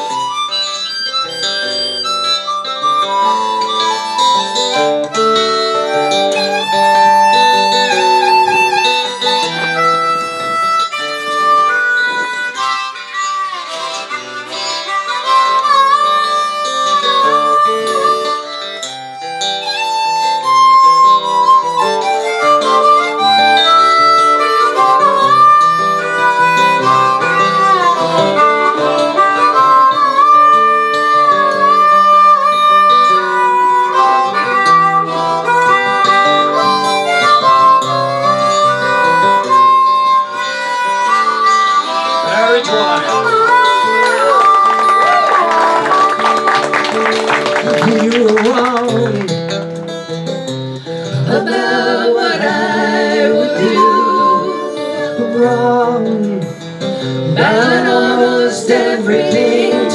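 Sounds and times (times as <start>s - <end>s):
guitar accompaniment: 0.0s - 59.9s
harmonica solo: 0.0s - 59.9s.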